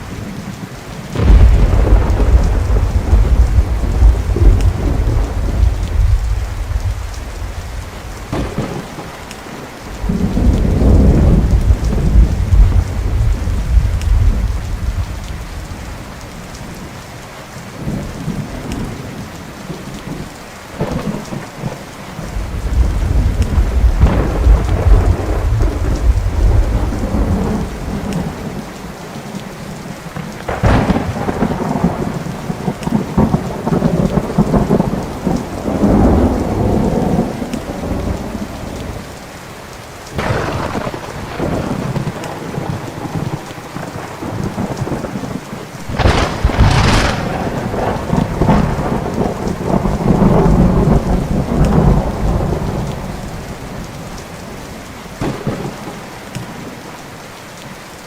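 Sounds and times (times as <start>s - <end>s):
steady rain: 0.0s - 58.0s
rolling thunder rumbles: 1.1s - 16.9s, 17.8s - 39.2s, 40.1s - 56.8s
sharp thunderclaps: 1.2s - 9.3s, 10.0s - 15.6s, 22.4s - 28.4s, 30.5s - 39.0s, 40.2s - 53.3s, 55.2s - 56.5s.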